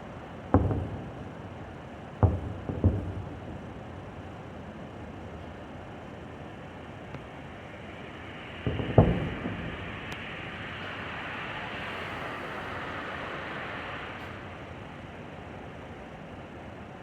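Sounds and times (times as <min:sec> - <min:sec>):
firework shell bursts: 0:00.0 - 0:05.9, 0:06.8 - 0:13.6
firework hiss: 0:07.2 - 0:15.2.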